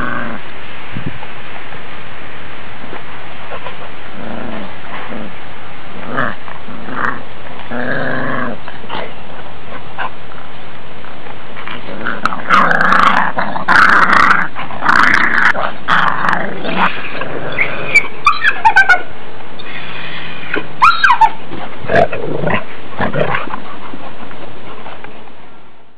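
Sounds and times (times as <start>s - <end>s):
puppies growling: 0.0s - 0.5s, 3.5s - 10.4s, 11.6s - 19.0s, 20.5s - 25.6s
steady hiss: 0.0s - 18.2s, 19.0s - 25.9s
puppies yipping and squealing: 16.8s - 19.2s, 19.8s - 25.0s.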